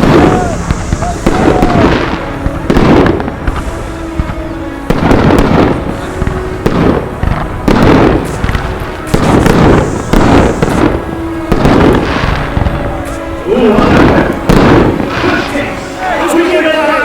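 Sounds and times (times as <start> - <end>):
firework shell bursts: 0.0 - 16.0
firework crackling: 0.0 - 17.0.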